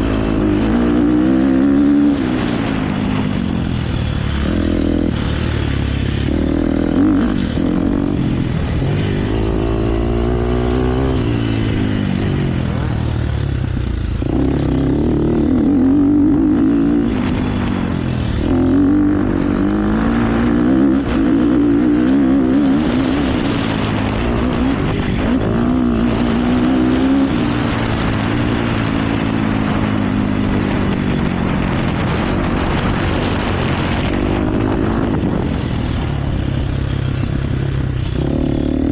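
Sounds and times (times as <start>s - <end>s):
motocross bike engine revving: 0.0s - 13.2s, 14.0s - 30.6s
steady rushing noise: 0.0s - 38.9s.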